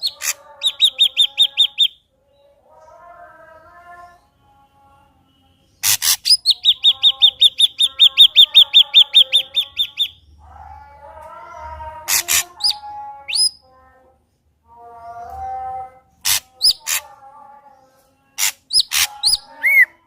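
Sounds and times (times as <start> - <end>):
high bird chirps: 0.0 - 2.0, 5.8 - 10.3, 12.1 - 13.6, 18.4 - 20.0.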